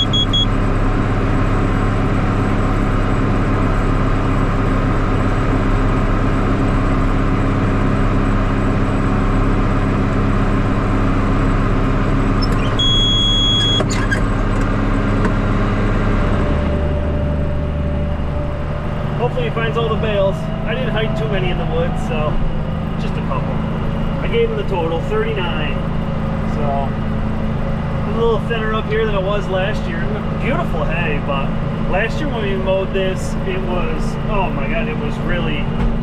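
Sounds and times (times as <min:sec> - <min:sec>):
high electronic beep: 0:00.0 - 0:00.6, 0:12.4 - 0:13.9
vehicle engine running: 0:00.0 - 0:36.0.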